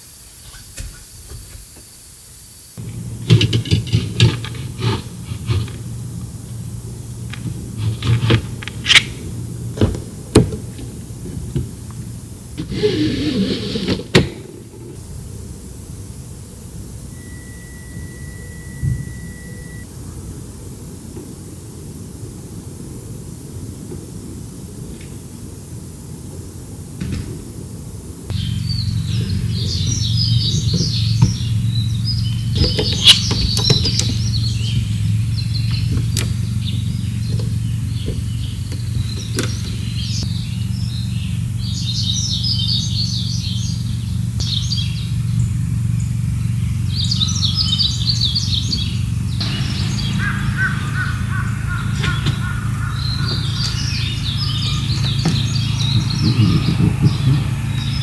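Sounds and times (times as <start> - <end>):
steady low hum: 2.8 - 58.0
small birds chirping: 28.0 - 58.0.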